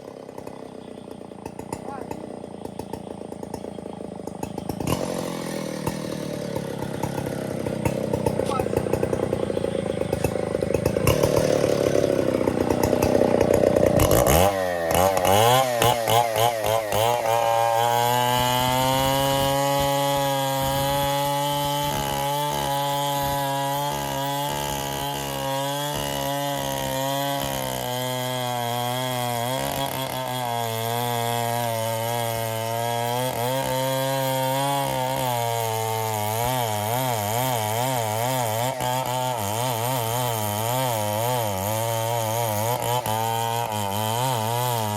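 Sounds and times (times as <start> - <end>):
chainsaw cutting wood: 0.0 - 44.9.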